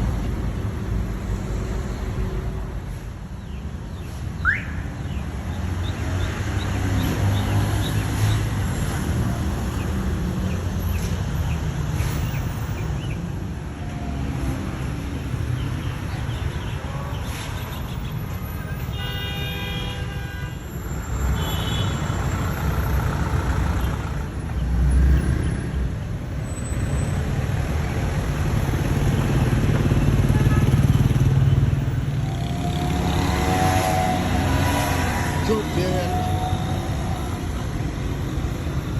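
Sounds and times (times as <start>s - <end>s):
car horn: 18.6s - 22.0s, 32.2s - 37.5s.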